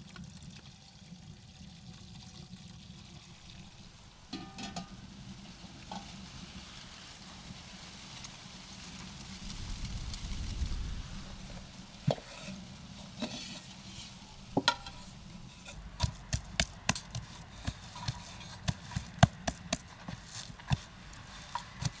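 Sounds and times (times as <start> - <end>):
kitchen utensils tapping: 15.7 - 22.0.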